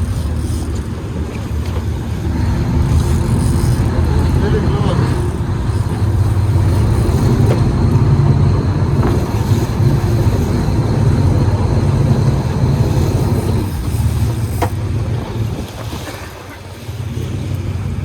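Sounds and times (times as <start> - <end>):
boat engines droning: 0.0 - 18.0.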